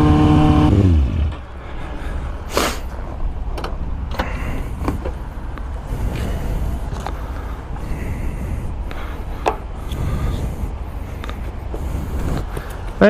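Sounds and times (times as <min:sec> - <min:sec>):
motorcycle engine shutting off: 0:00.0 - 0:01.5
low rumble: 0:00.7 - 0:13.0
sharp clicks and knocks: 0:03.5 - 0:05.2.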